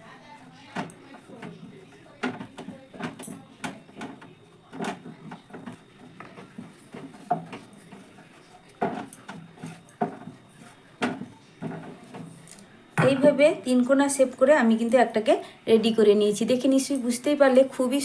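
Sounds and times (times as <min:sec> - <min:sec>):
rolling pin knocking on board: 0:13.0 - 0:13.5.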